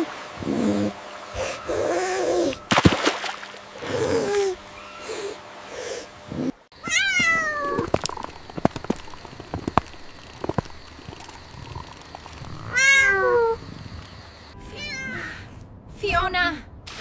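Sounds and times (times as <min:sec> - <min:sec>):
cat meowing: 0:06.8 - 0:08.2, 0:12.6 - 0:13.6, 0:14.6 - 0:15.5.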